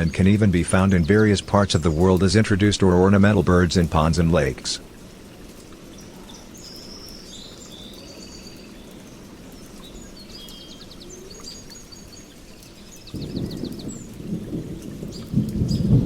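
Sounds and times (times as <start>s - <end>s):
thunder rumbling: 0.0s - 5.2s, 13.1s - 16.0s
small birds chirping and trilling: 0.0s - 16.0s
steady rain: 0.0s - 16.0s.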